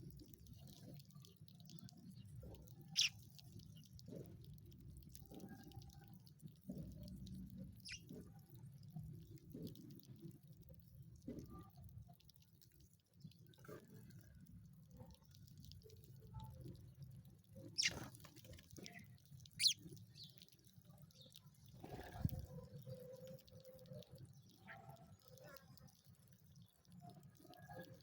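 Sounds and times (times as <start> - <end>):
faint small bird chirps: 0.0 - 4.2, 7.6 - 8.8, 17.6 - 28.0
sharp bird chirps: 2.9 - 3.1, 7.8 - 8.0, 17.8 - 18.0.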